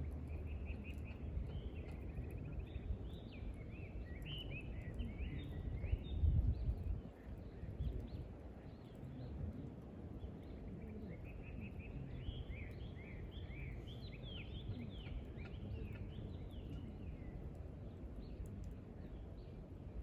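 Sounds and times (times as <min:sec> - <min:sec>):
wind rumbling on microphone: 0:00.0 - 0:10.0
campfire crackles: 0:06.8 - 0:20.0.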